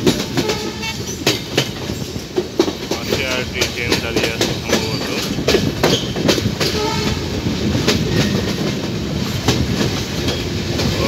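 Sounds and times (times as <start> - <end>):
train wheels rumbling on rail: 0.0 - 11.0
wheels clacking over rail joints: 0.0 - 11.0.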